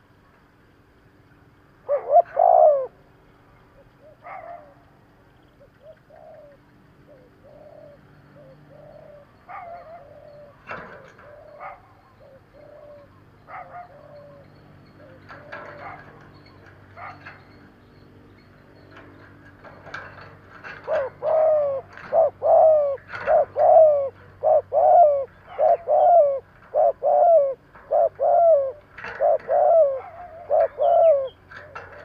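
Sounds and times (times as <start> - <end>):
dove cooing: 1.8 - 4.9, 5.5 - 17.6, 18.6 - 32.0.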